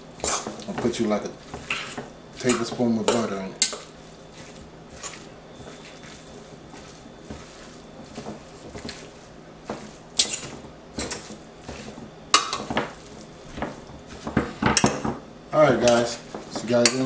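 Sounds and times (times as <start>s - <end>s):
metal utensil scraping a pot: 10.2s - 12.8s.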